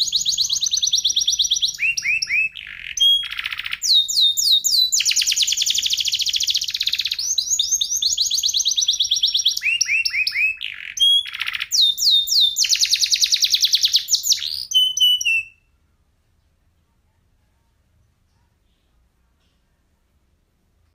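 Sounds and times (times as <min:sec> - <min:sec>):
canary singing trills: 0:00.0 - 0:15.8.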